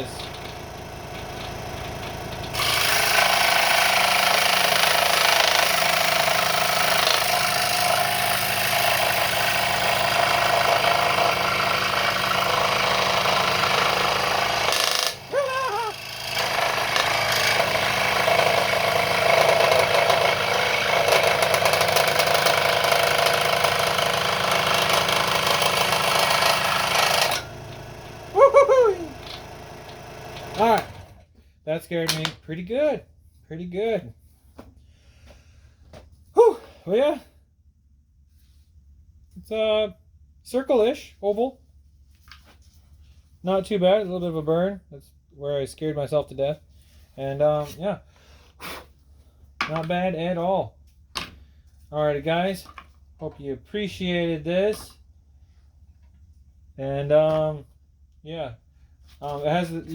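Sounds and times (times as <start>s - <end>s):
scroll saw cutting wood: 0.0s - 31.2s, 59.2s - 59.9s.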